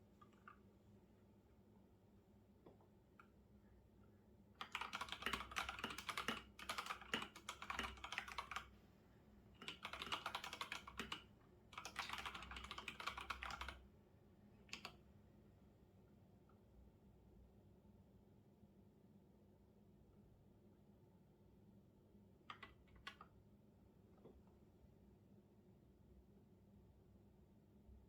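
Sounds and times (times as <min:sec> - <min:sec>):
typing on keyboard: 0:04.6 - 0:08.7, 0:09.6 - 0:13.8, 0:14.7 - 0:15.0, 0:22.5 - 0:23.3.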